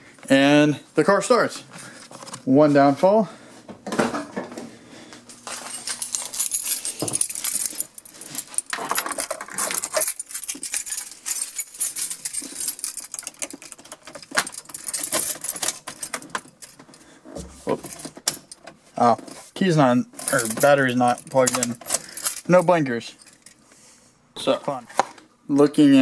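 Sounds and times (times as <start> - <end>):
keys jangling: 5.3 - 17.1, 20.2 - 23.6.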